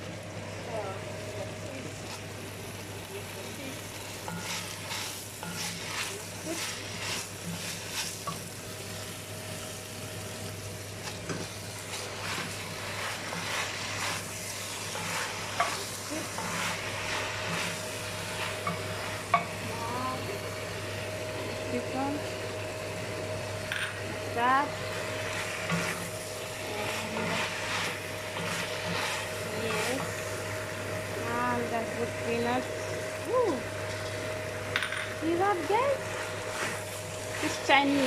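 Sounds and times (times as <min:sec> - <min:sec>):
food sizzling in a pan: 0:00.0 - 0:38.0
steady low hum: 0:00.0 - 0:38.0
scraping strokes in a pan: 0:04.0 - 0:09.1, 0:10.9 - 0:20.2, 0:24.8 - 0:30.6, 0:35.4 - 0:38.0.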